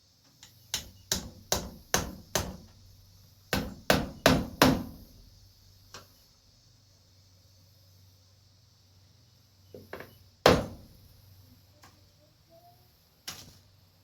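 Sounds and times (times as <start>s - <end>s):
hammer striking nails: 0.7s - 2.8s, 3.5s - 5.1s, 10.4s - 10.9s.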